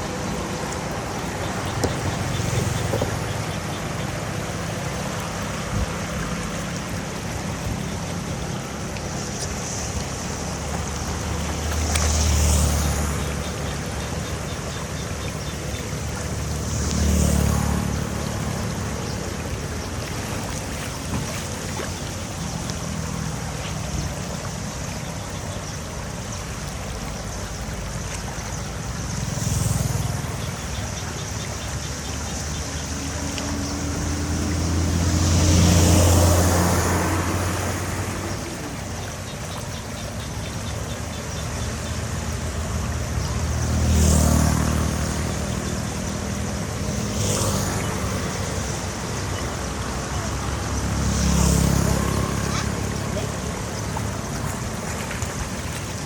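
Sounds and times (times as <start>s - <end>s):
engine running: 0.0s - 56.0s
wash of noise: 0.0s - 56.0s.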